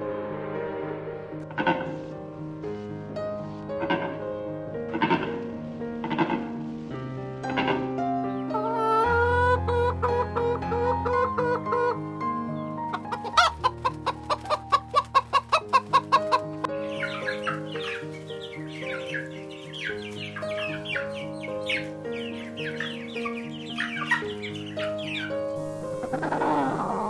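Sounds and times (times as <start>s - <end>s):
background music: 0.0s - 27.0s
chickens clucking: 8.4s - 27.0s.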